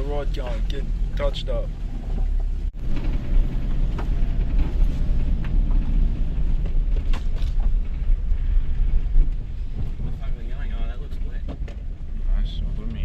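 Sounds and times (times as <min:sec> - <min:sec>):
engine and tyre rumble: 0:00.0 - 0:13.0.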